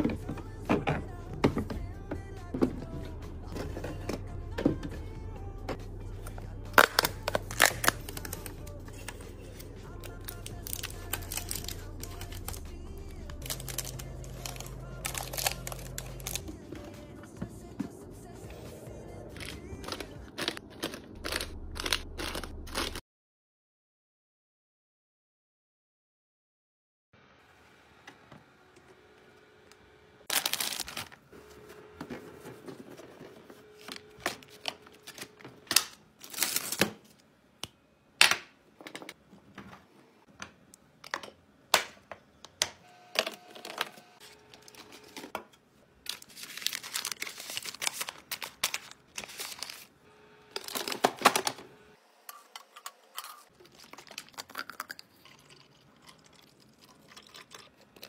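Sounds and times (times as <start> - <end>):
packaging crinkling and tearing: 6.7 - 8.6, 10.0 - 16.5, 19.4 - 23.0, 30.3 - 31.3, 33.8 - 37.1, 46.0 - 51.6, 53.2 - 55.0
items clicking and knocking: 38.2 - 44.0, 50.6 - 51.6.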